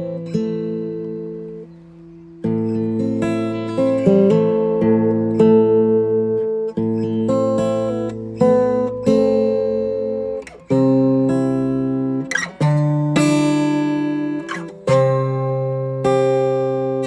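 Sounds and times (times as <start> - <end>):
acoustic guitar strummed chords: 0.0 - 17.0.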